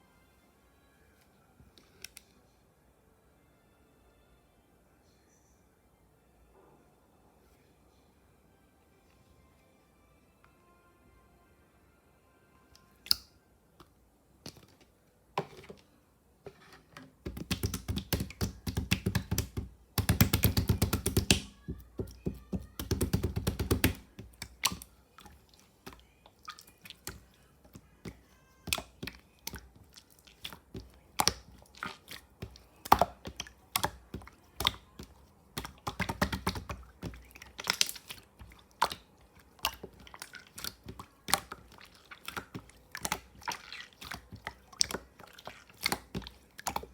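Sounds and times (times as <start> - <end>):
slime squished by hand: 17.3 - 46.9.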